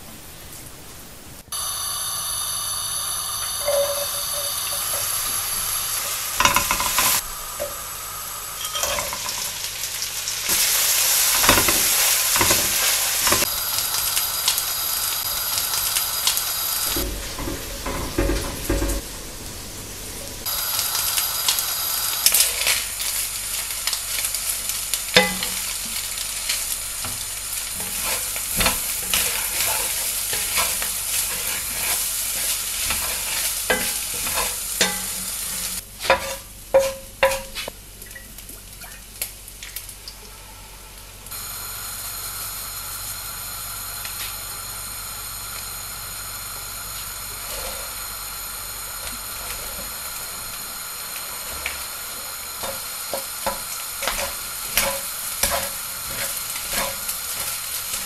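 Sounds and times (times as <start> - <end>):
food sizzling in a pan: 0.0 - 40.2, 41.3 - 58.0
spatula scraping and knocking pan: 3.6 - 7.8, 10.5 - 13.5, 16.9 - 19.3, 22.3 - 37.7, 51.4 - 58.0.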